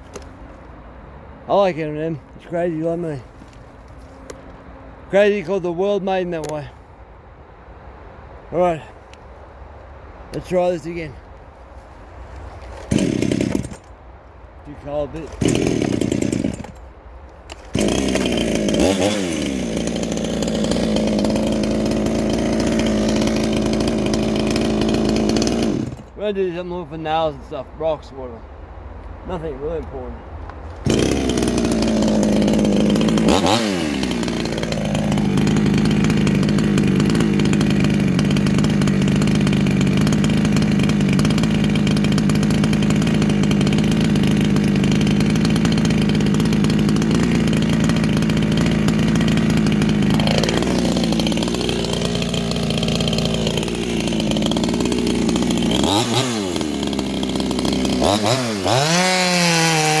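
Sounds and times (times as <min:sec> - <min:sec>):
chainsaw running at high revs: 0:12.8 - 0:13.9, 0:15.2 - 0:16.8, 0:17.5 - 0:26.2, 0:30.8 - 1:00.0.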